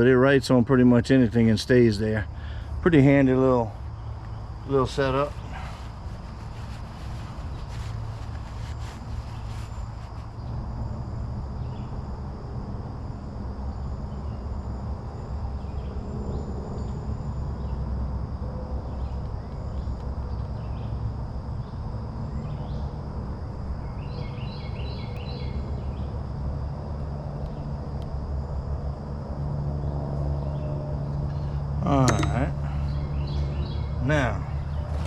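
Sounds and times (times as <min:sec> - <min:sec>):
insects droning: 0:00.0 - 0:35.0
bird chirps: 0:31.3 - 0:35.0.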